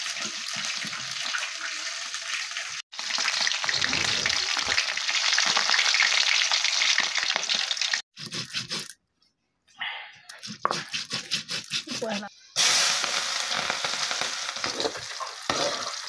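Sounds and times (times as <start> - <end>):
chicken frying in hot oil: 0.0 - 8.0, 12.6 - 16.0.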